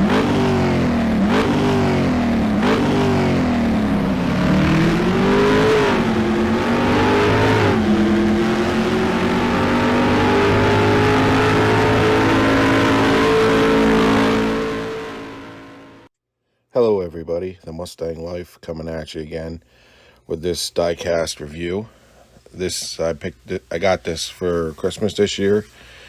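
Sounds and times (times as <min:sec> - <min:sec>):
car engine revving: 0:00.0 - 0:16.1.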